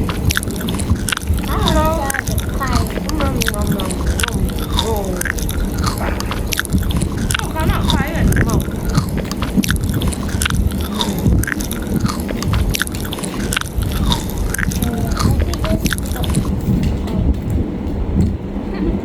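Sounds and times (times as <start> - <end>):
wet mouth clicks: 0.0 - 17.0
chewing and biting food: 0.0 - 17.6.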